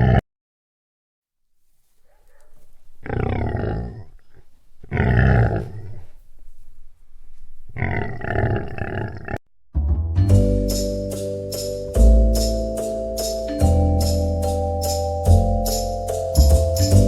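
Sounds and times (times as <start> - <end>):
deep growling animal roars: 3.0 - 6.0, 7.7 - 9.4.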